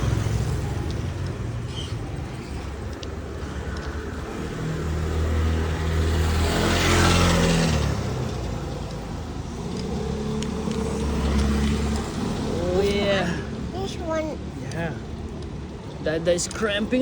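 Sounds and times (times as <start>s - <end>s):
car driving past: 4.3s - 13.8s.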